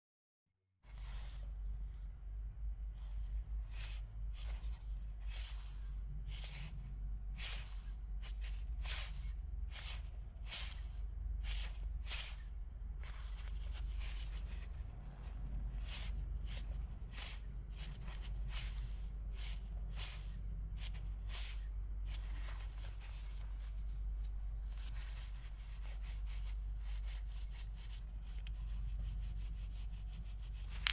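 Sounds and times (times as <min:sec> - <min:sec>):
gritty bearing rubbing: 0:13.0 - 0:30.9.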